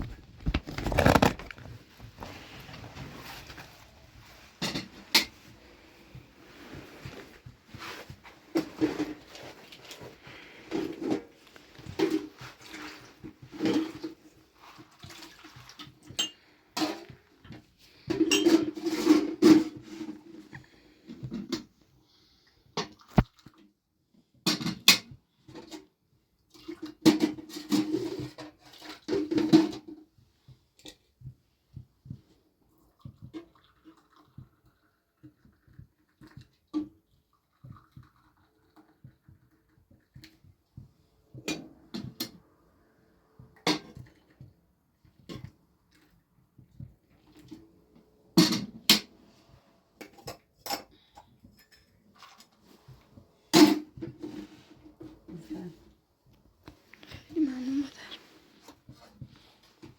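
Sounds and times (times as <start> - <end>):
knocks and scrapes: 0.0 - 15.8
hands clattering and rustling: 0.0 - 21.8, 43.8 - 59.9.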